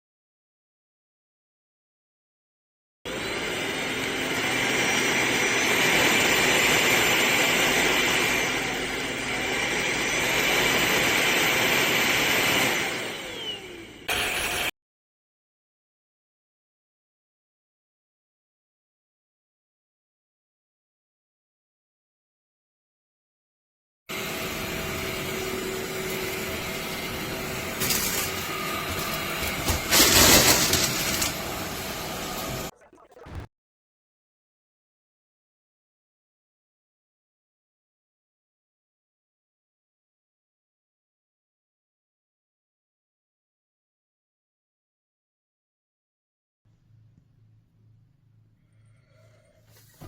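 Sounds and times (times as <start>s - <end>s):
stick vacuum running: 3.1s - 14.7s, 24.1s - 33.4s.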